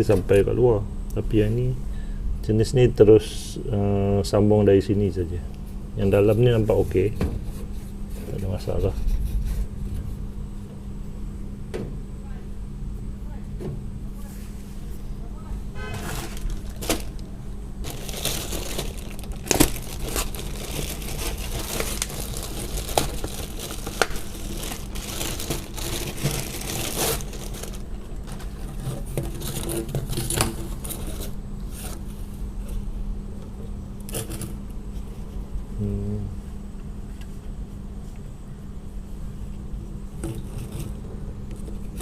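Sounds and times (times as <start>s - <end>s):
steady low hum: 0.0s - 42.0s
plastic rustling and crinkling: 15.9s - 32.1s.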